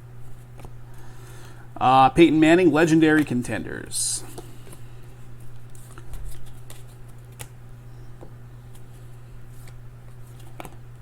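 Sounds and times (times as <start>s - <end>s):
low electrical hum: 0.0s - 11.0s
trading cards flipping: 5.4s - 7.6s, 8.2s - 10.8s.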